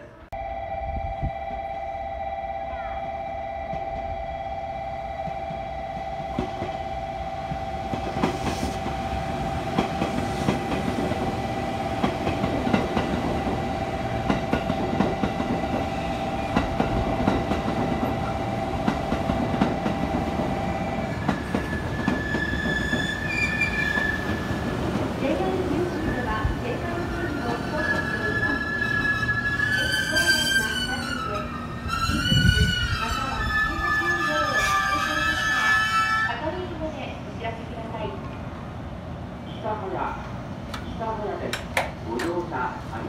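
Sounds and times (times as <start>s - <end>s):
electric train passing: 0.4s - 39.4s
high wheel squeal: 21.4s - 24.4s, 27.3s - 36.4s.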